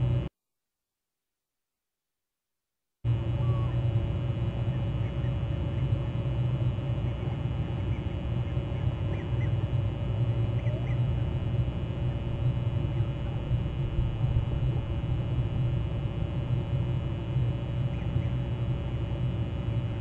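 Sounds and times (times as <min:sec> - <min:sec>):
low outdoor rumble: 0:03.1 - 0:20.0
distant bird calls: 0:04.6 - 0:06.0, 0:07.0 - 0:11.2, 0:17.7 - 0:18.8.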